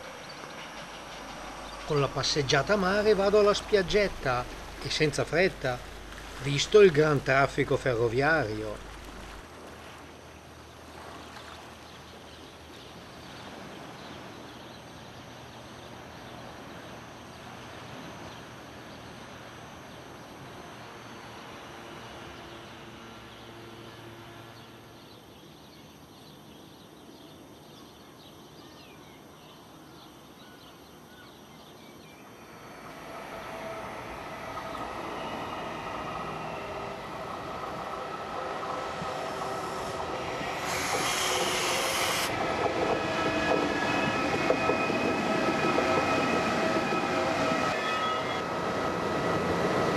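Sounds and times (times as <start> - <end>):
electric train approaching: 0.0 - 11.0, 12.1 - 25.1, 32.1 - 49.9
surf washing on pebbles: 2.0 - 11.9
high-pitched train squeal: 32.4 - 49.9.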